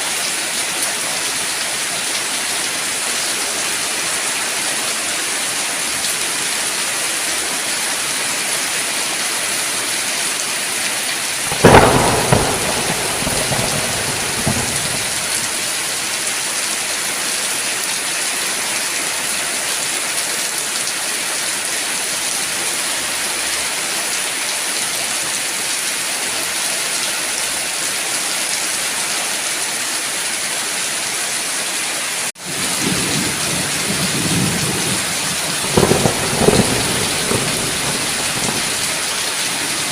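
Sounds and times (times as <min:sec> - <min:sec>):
heavy rain falling: 0:00.0 - 0:39.9
thunder: 0:11.5 - 0:16.2, 0:32.5 - 0:39.2.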